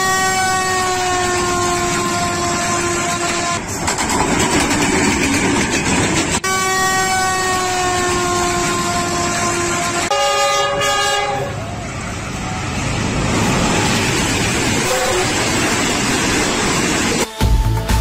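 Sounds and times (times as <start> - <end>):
locomotive horn blast: 0.0 - 3.7, 6.4 - 12.8, 14.8 - 15.6
train rumble and clatter: 0.0 - 18.0.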